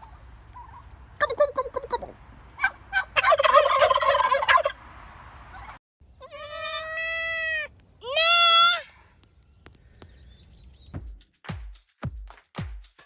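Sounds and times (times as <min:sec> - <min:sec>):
turkey gobbling: 0:00.0 - 0:05.8
high-pitched animal call: 0:06.1 - 0:09.0.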